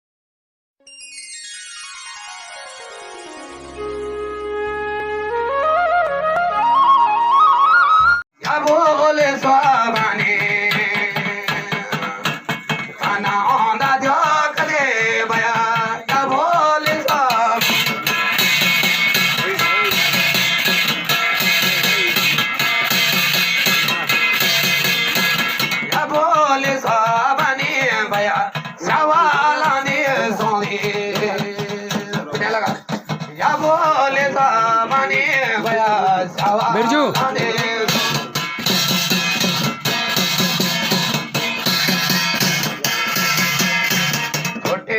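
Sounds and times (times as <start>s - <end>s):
folk melody bending in pitch: 0.9s - 8.2s, 17.2s - 25.9s
person singing folk song: 8.4s - 22.6s, 25.4s - 38.5s
drum strokes: 8.4s - 44.9s.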